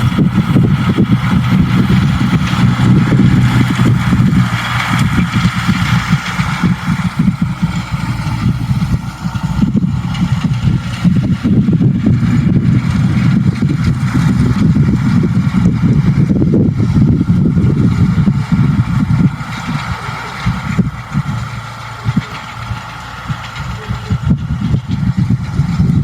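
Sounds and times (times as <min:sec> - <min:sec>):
tractor diesel engine humming: 0:00.0 - 0:26.0.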